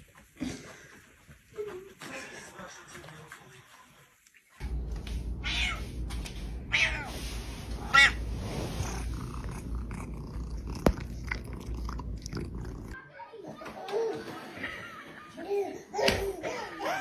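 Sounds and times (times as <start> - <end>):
low steady rumble: 4.6 - 13.0
cat meowing: 5.3 - 7.2, 7.8 - 8.3.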